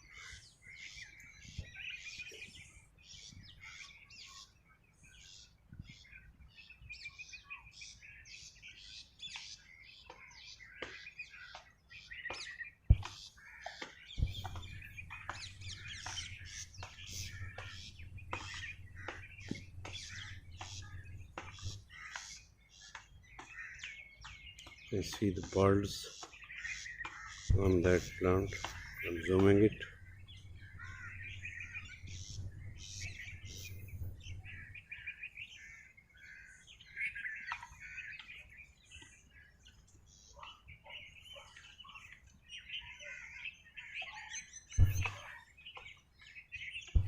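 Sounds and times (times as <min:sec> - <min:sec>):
songbirds chirping: 0:00.0 - 0:47.0
low steady hum: 0:14.2 - 0:22.1, 0:27.5 - 0:35.1.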